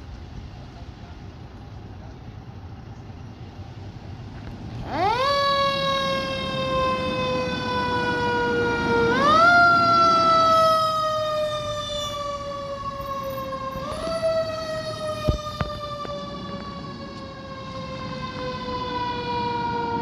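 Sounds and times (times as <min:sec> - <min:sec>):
fire engine siren: 0:04.4 - 0:20.0.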